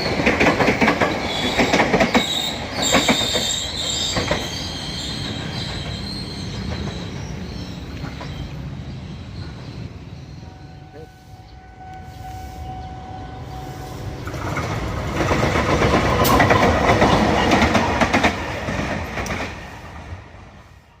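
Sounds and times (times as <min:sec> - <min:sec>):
wheels clattering over rail joints: 0:00.0 - 0:07.4, 0:14.3 - 0:19.6
train passing: 0:00.0 - 0:21.0.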